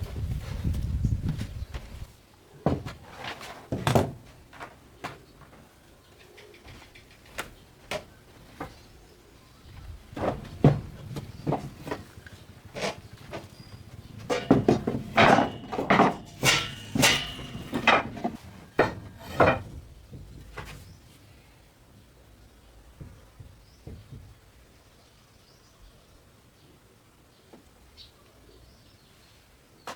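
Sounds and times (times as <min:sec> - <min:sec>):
irregular knocks and clatters: 0:10.0 - 0:21.1, 0:22.9 - 0:24.6.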